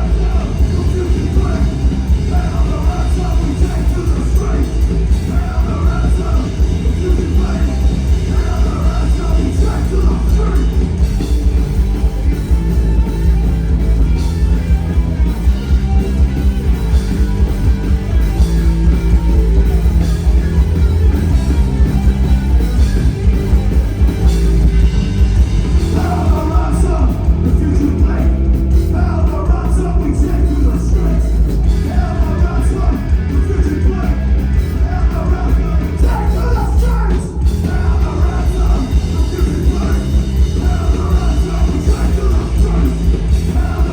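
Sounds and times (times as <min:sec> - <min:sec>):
person singing: 0:00.0 - 0:11.0, 0:25.8 - 0:43.9
live rock band playing: 0:00.0 - 0:43.9.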